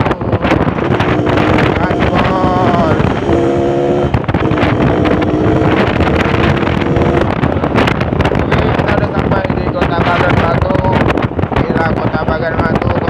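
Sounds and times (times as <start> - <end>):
two-stroke motorcycle engine: 0.0 - 9.2
wind buffeting microphone: 0.0 - 13.0.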